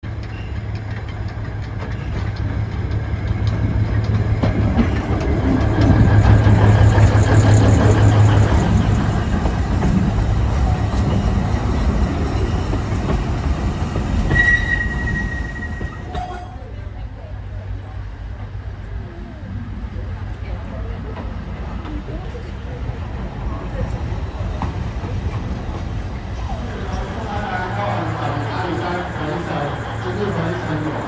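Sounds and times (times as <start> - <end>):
train wheels on rails: 0.1 - 31.0
high wheel squeal: 5.8 - 16.6, 26.4 - 31.0
diesel engine droning: 26.2 - 31.0.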